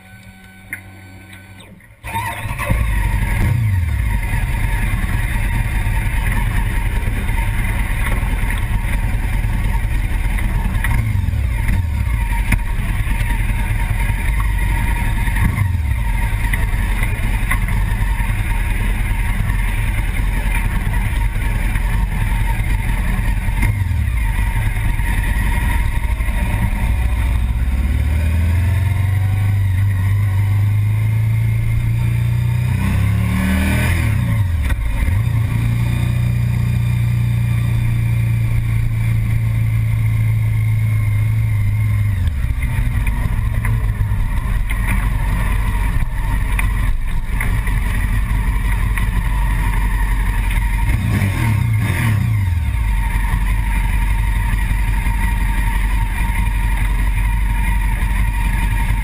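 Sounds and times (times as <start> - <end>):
car engine starting and idling: 0.0 - 59.0.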